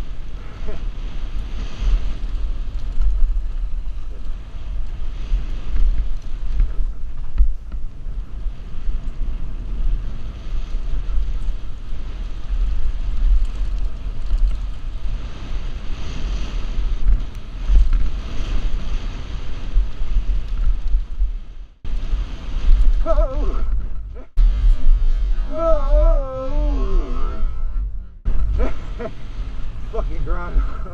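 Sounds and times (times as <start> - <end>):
wind buffeting microphone: 0.0 - 30.9
faint bike clicks: 2.2 - 8.2, 12.6 - 15.1.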